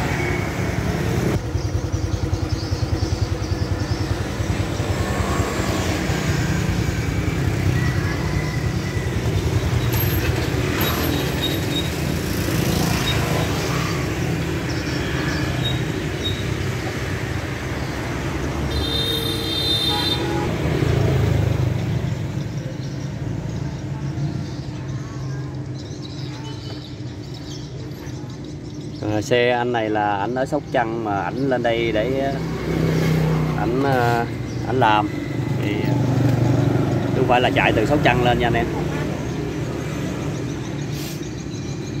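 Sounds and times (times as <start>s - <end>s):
motorcycle engine idling: 0.6s - 5.1s.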